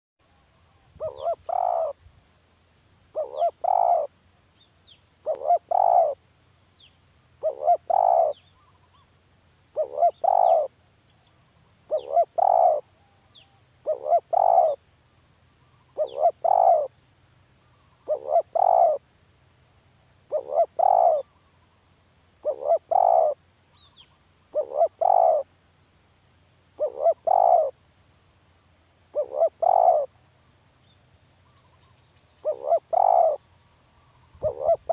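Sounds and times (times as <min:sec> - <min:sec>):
faint high bird chirps: 0:00.2 - 0:02.0, 0:03.1 - 0:19.2, 0:20.2 - 0:25.6, 0:29.0 - 0:34.9
dove cooing: 0:00.7 - 0:02.0, 0:03.1 - 0:04.1, 0:05.2 - 0:06.2, 0:07.4 - 0:09.0, 0:09.7 - 0:10.7, 0:11.9 - 0:14.8, 0:15.7 - 0:16.9, 0:17.7 - 0:19.0, 0:20.3 - 0:21.5, 0:22.4 - 0:23.4, 0:24.5 - 0:25.5, 0:26.8 - 0:27.8, 0:29.1 - 0:30.2, 0:31.4 - 0:33.4, 0:34.0 - 0:34.9.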